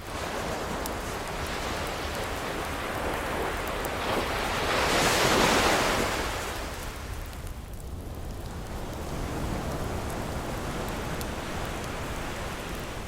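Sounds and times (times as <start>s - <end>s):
faint wood fire crackle: 0.0s - 13.0s
ocean wave surging: 8.1s - 13.0s.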